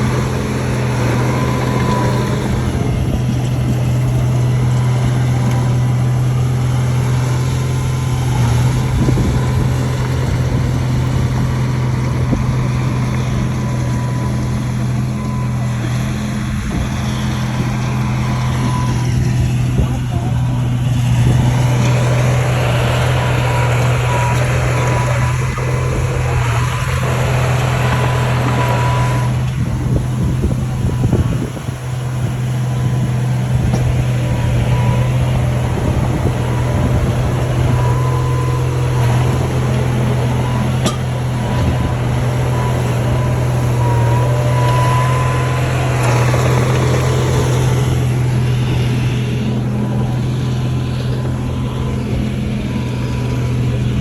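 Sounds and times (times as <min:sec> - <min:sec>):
bulldozer diesel engine drone: 0:00.0 - 0:54.0.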